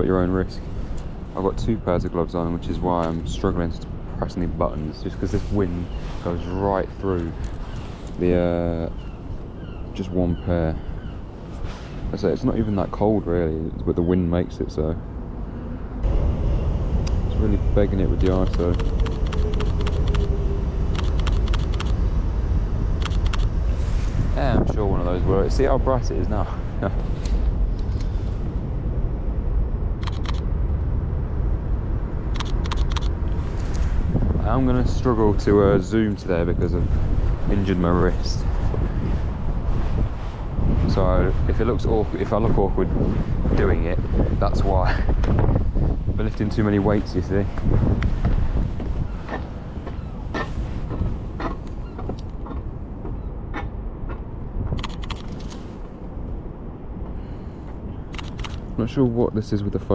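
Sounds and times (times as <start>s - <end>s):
wind rumble on microphone: 0.0s - 59.9s
sharp clicks: 18.2s - 22.0s, 23.0s - 23.5s, 30.0s - 30.4s, 32.3s - 33.8s, 54.7s - 55.6s, 58.1s - 58.6s
camera shutter clicks: 30.0s - 30.4s, 32.4s - 33.1s.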